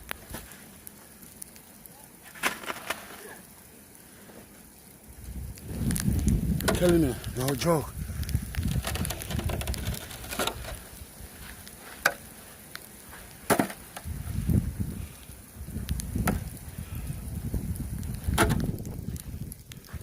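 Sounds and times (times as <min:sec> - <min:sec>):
snow crunching and scraping: 0:00.0 - 0:01.2, 0:02.2 - 0:08.0, 0:08.6 - 0:16.2, 0:17.6 - 0:20.0.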